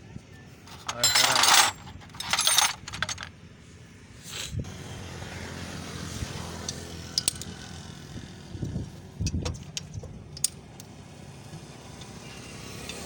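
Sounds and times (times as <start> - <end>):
steady vehicle noise: 0.0 - 13.0
hand tools and metal parts clinking: 0.6 - 3.4, 6.6 - 7.8, 9.2 - 11.0.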